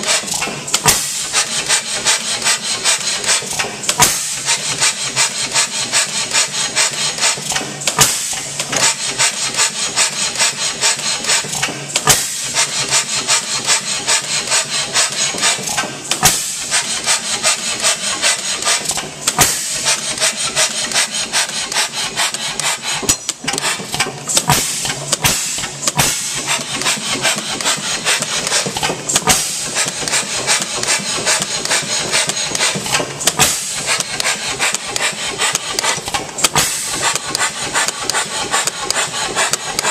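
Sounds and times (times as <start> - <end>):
engine firing stroke: 0.0 - 39.9
gas engine clicking and clattering: 0.0 - 39.9.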